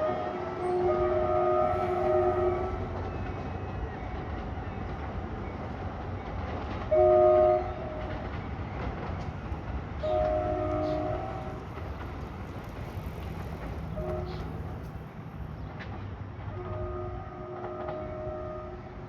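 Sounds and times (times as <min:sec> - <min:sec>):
train horn blasts: 0:00.0 - 0:03.1, 0:06.9 - 0:08.2, 0:10.0 - 0:11.7, 0:13.9 - 0:14.9, 0:16.5 - 0:19.0
moving train rumble: 0:00.0 - 0:19.0.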